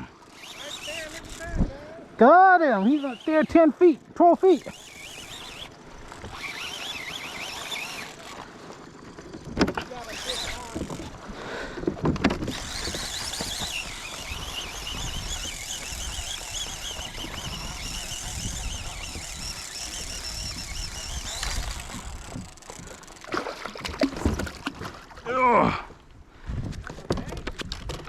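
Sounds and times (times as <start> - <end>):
fishing reel drag squealing: 0.1 - 1.9, 2.5 - 9.2, 9.8 - 11.2, 12.5 - 23.3.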